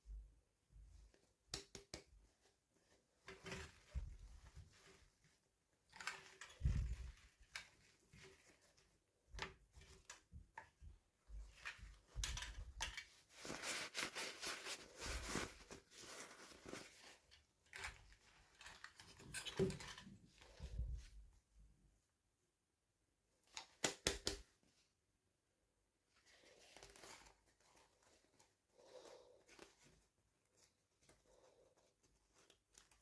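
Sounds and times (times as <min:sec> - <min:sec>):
plastic packaging rustling: 0:12.0 - 0:20.6.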